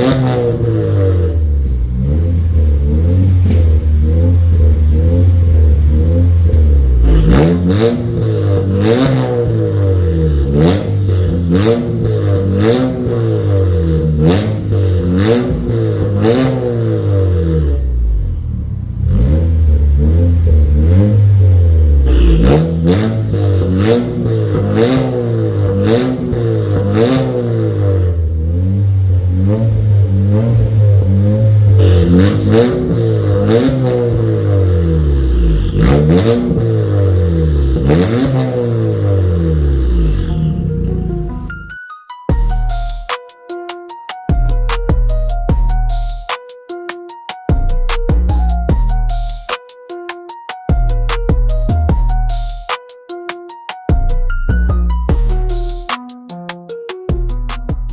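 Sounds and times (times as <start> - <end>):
car engine revving: 0.0 - 41.6.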